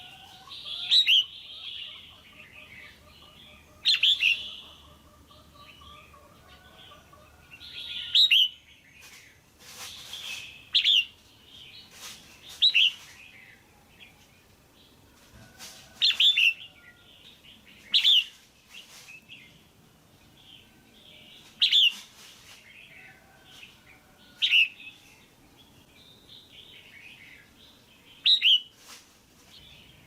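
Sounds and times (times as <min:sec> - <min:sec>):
bulbul chirping calls: 0:00.0 - 0:06.1
soft bird chatter: 0:00.0 - 0:30.0.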